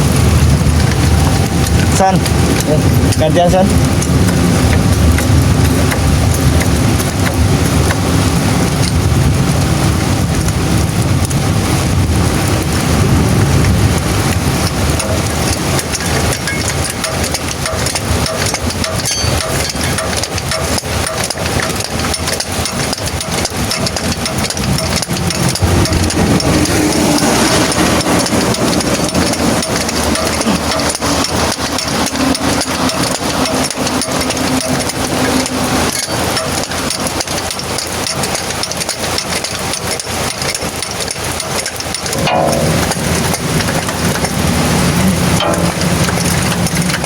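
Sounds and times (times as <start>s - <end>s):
engine idling: 0.0s - 47.0s
tools knocking on metal: 15.9s - 38.9s, 41.9s - 47.0s.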